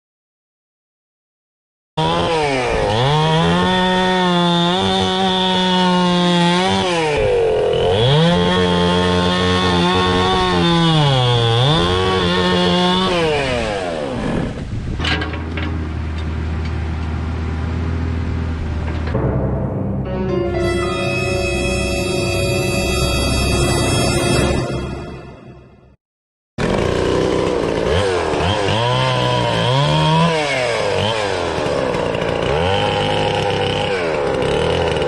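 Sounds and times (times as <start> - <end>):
chainsaw cutting wood: 2.0 - 14.8, 26.6 - 35.0.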